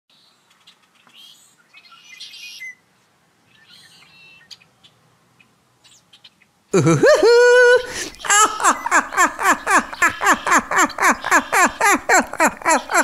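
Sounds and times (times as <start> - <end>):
birds chirping: 3.5 - 13.0.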